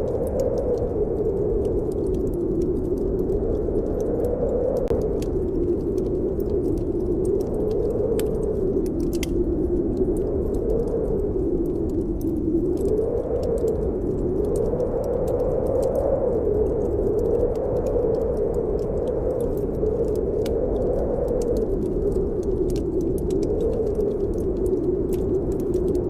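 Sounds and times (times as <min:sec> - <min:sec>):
snowstorm wind howling: 0:00.0 - 0:26.0
wood fire crackling and popping: 0:00.0 - 0:26.0.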